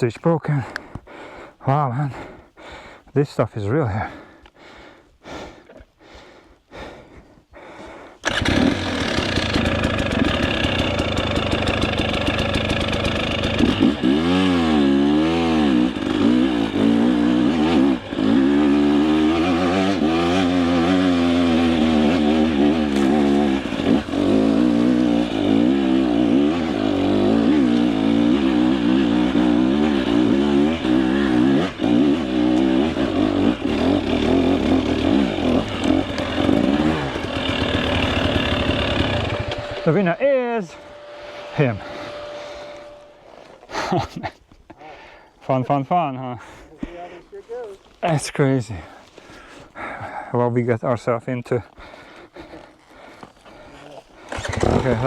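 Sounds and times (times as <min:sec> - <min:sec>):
dirt bike engine revving: 0:08.2 - 0:44.3, 0:54.2 - 0:55.0.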